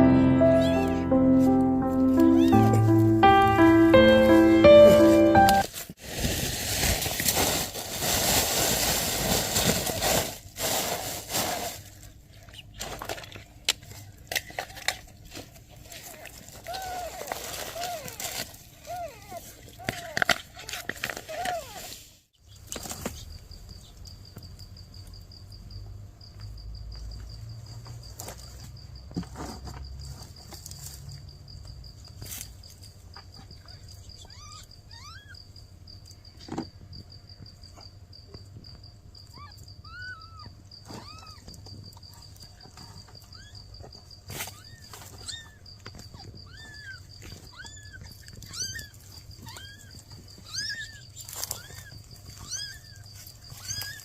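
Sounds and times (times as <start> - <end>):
kittens mewing: 2.0 - 3.2, 33.6 - 35.4, 39.3 - 41.6, 46.2 - 54.0.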